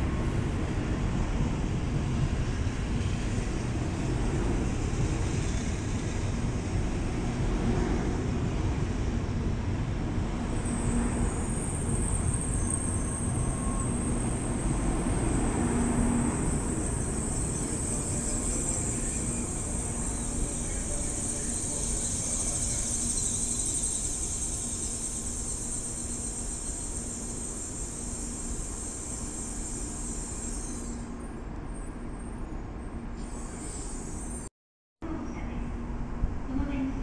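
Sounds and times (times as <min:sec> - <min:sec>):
train wheels rumbling: 0:00.0 - 0:32.6
thin high whine: 0:16.5 - 0:31.3.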